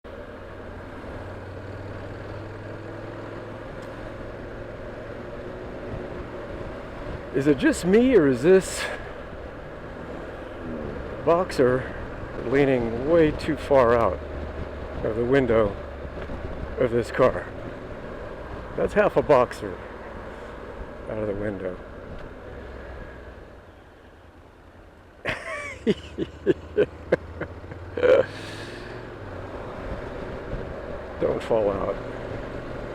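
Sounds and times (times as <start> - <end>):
motorcycle engine hum: 0.0 - 32.9
road noise: 0.0 - 32.9
wind noise: 14.2 - 16.8, 29.5 - 31.0.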